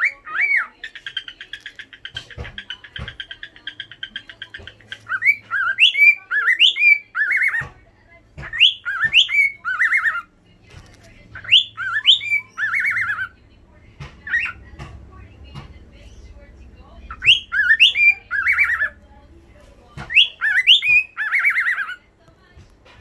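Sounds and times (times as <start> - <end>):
cockatiel whistling: 0.0 - 1.3, 2.1 - 7.7, 8.4 - 10.3, 11.4 - 13.4, 14.2 - 14.8, 17.1 - 19.0, 20.0 - 22.0
cockatiel chirping: 0.0 - 7.7, 8.4 - 13.4, 14.0 - 22.1.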